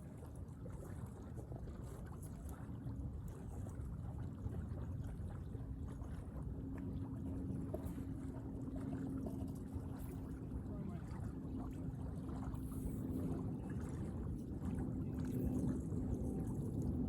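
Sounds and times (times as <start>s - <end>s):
low outdoor rumble: 7.0s - 17.0s.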